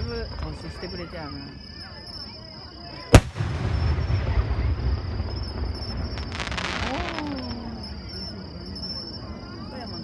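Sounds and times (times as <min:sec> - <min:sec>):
crickets chirping: 0:00.0 - 0:10.0
firework boom with echo: 0:03.2 - 0:08.0
firework crackling: 0:03.2 - 0:08.0.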